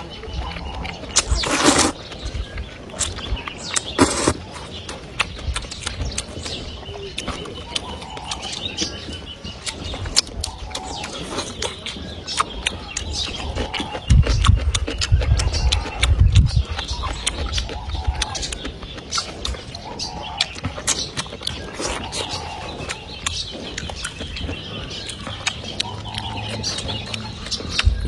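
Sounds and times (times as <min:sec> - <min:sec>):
chewing: 0:00.0 - 0:28.0
person slurping soup: 0:01.2 - 0:02.0, 0:03.9 - 0:04.5.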